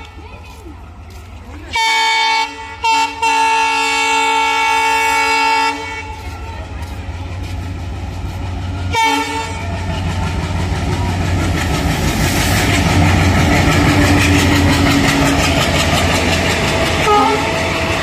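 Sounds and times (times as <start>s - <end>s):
train horn blast: 1.7s - 6.2s, 8.9s - 9.8s, 17.0s - 17.8s
wheels clacking over rail joints: 6.0s - 18.0s.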